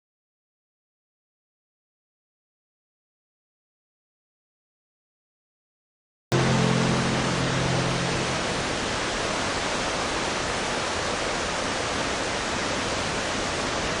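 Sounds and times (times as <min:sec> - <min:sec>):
low hum: 0:06.3 - 0:10.2
waterfall rushing: 0:06.4 - 0:14.0.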